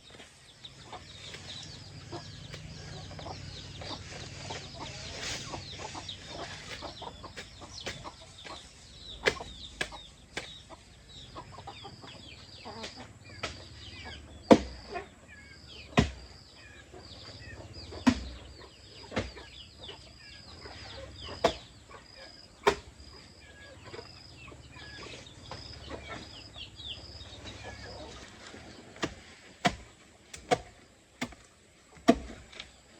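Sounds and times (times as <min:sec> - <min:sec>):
chickens clucking and peeping: 0:00.0 - 0:32.9.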